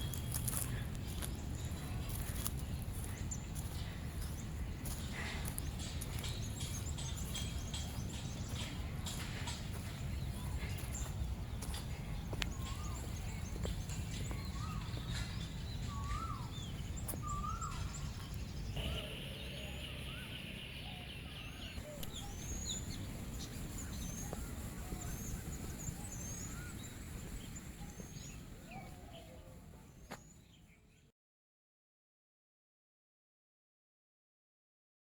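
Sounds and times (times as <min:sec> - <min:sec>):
low outdoor rumble: 0:00.0 - 0:30.1
birds chirping: 0:00.0 - 0:31.0
bird trilling: 0:14.4 - 0:23.0.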